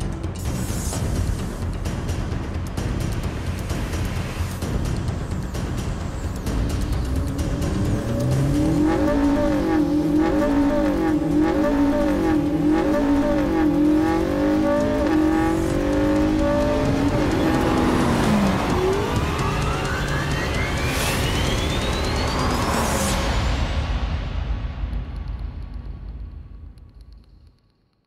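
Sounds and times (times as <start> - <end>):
sports car engine revving: 6.5 - 23.0.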